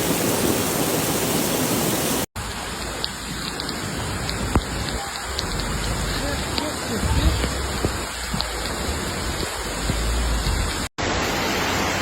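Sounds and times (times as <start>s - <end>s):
heavy rain: 0.0s - 12.0s
water drips ticking: 2.3s - 10.9s.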